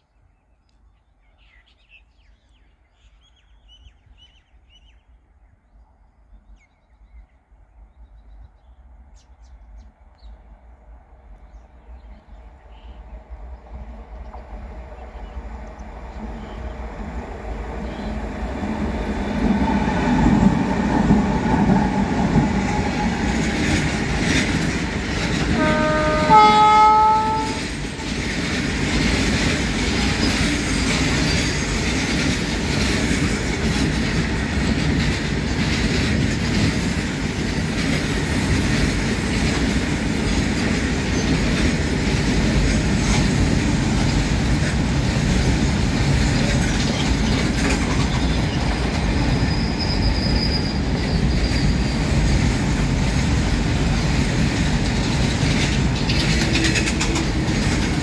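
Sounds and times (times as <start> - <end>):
electric locomotive hauling train: 12.0 - 58.0
train horn blast: 25.3 - 28.2
wheels clattering over rail joints: 41.4 - 58.0.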